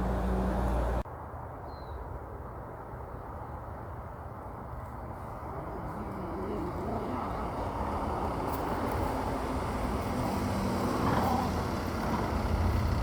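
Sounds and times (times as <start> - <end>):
heavy truck engine: 0.0 - 1.0, 5.1 - 13.0.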